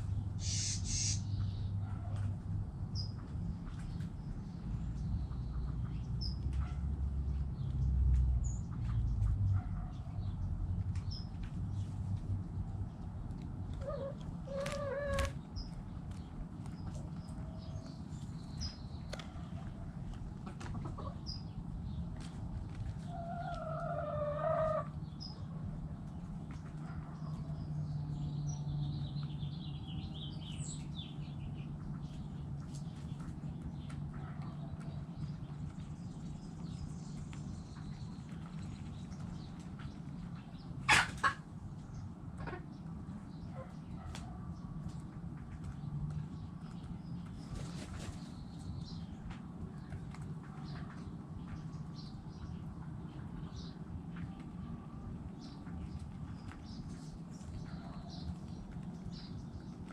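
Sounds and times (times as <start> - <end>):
small birds chirping: 0.0 - 59.9
drawn-out hen call: 0.4 - 1.5, 13.7 - 15.4, 23.1 - 25.0
chickens clucking: 0.4 - 2.4, 10.9 - 27.6, 37.2 - 48.4, 49.0 - 59.9.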